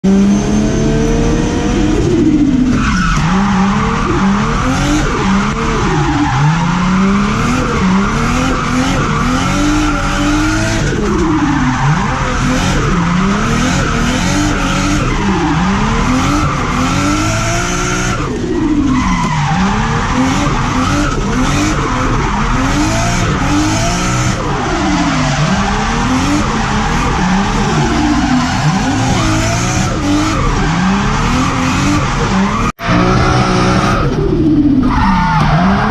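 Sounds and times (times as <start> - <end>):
car engine revving: 0.0 - 35.9.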